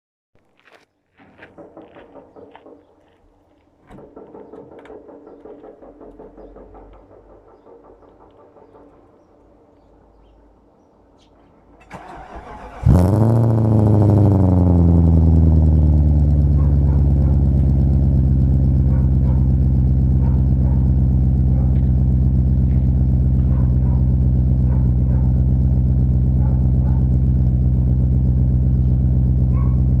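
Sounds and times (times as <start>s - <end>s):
car engine starting and idling: 11.8s - 30.0s.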